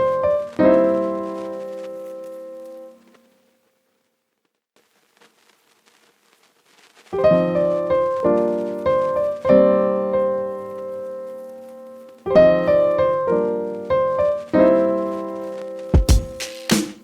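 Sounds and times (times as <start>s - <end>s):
piano chords: 0.0s - 3.0s, 7.2s - 17.0s.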